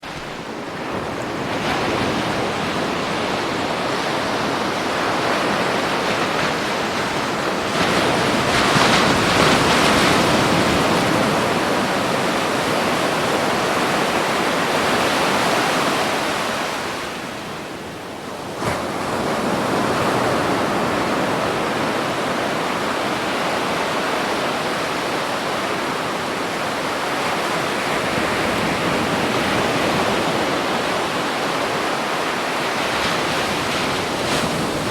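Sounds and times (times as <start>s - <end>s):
ocean waves breaking: 0.0s - 34.9s.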